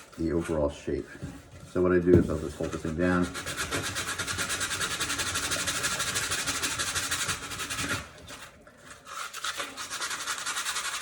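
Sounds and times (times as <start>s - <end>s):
sandpaper rubbing on foam board: 1.8s - 8.1s, 9.0s - 11.0s.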